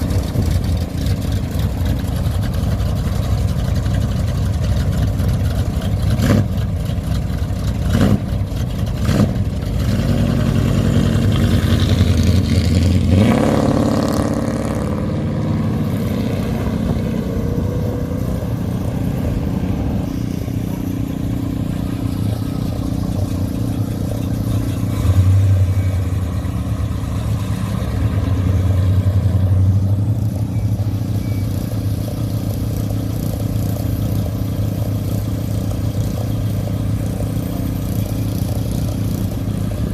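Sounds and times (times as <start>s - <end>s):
car engines driving past: 0.0s - 39.9s
car engine revving sharply: 9.0s - 30.2s.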